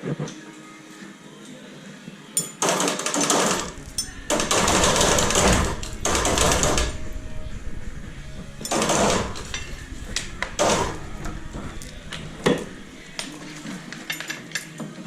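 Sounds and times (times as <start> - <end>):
pneumatic impact wrench rattling: 2.6 - 7.1, 8.6 - 14.6.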